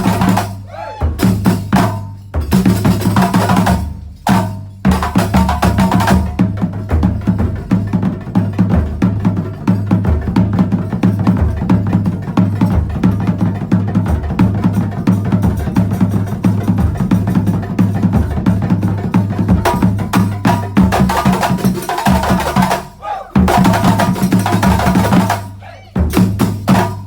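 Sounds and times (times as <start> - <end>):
frame drums playing fast rhythm: 0.0 - 27.0.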